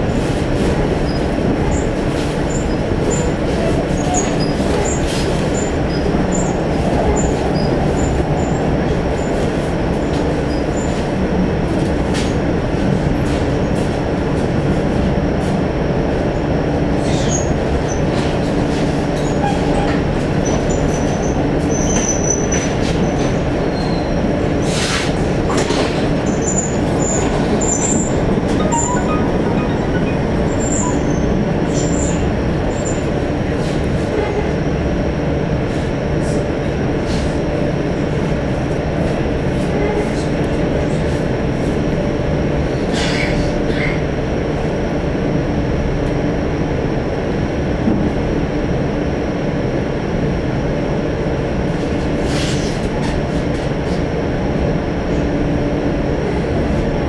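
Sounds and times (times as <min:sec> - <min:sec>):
train wheels rumbling on rails: 0:00.0 - 0:57.0
brief high squeaks: 0:28.6 - 0:32.2.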